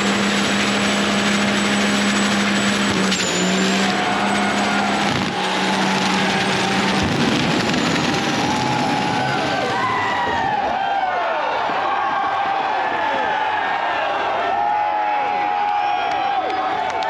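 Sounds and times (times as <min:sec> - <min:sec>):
thin high whine: 0:00.0 - 0:10.0
truck engine at high revs: 0:00.0 - 0:10.7
loud rushing noise: 0:00.0 - 0:10.9.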